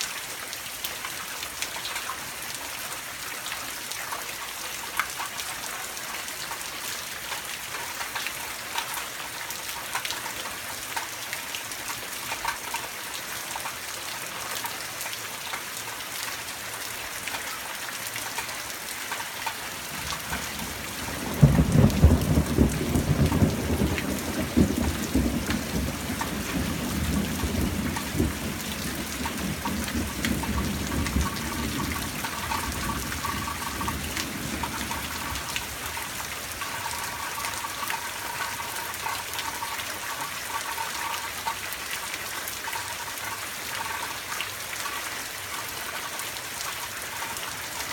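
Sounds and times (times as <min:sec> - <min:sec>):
steady rain: 0:00.0 - 0:47.9
thunder crack and rumble: 0:20.2 - 0:36.1.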